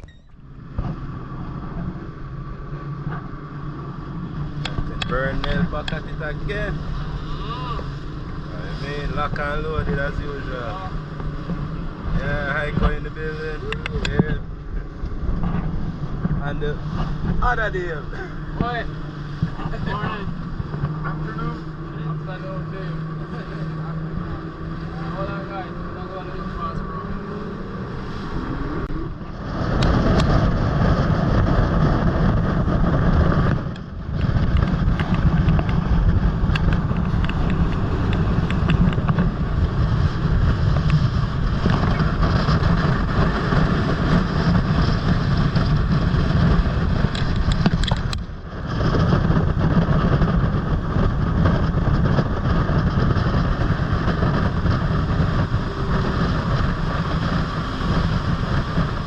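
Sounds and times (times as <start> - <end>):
hull rushing on water: 0.0 - 59.0
motorboat engine: 0.0 - 59.0
wind on microphone: 0.0 - 59.0.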